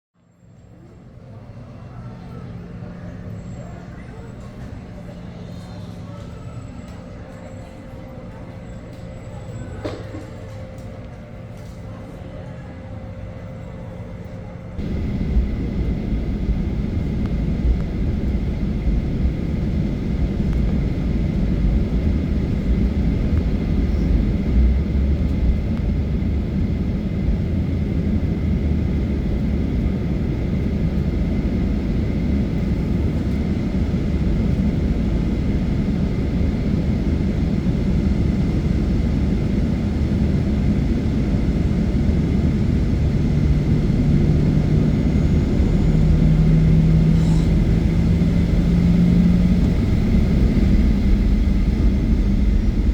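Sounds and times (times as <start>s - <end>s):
high fan tone: 0.2s - 52.9s
jet engines roaring: 14.8s - 52.9s.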